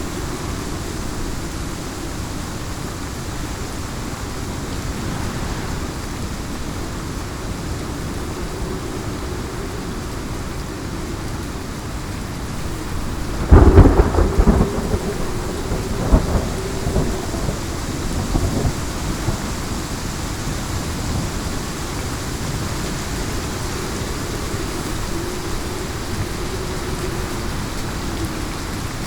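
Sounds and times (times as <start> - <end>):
heavy rain: 0.0 - 29.0
loud thunderclap rumbling: 3.9 - 7.6, 12.6 - 20.0.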